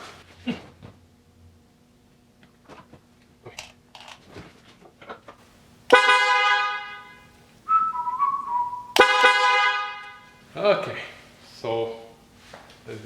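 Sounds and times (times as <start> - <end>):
car horn blast: 5.9 - 10.2.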